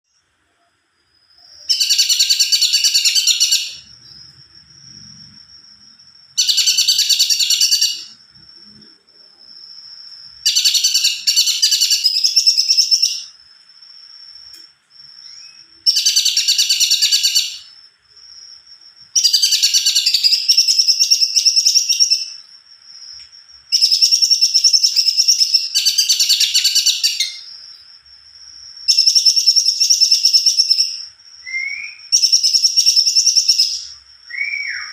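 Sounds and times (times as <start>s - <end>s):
songbird trilling: 1.6s - 3.9s, 6.4s - 8.2s, 10.4s - 13.3s, 15.3s - 17.7s, 28.9s - 34.9s.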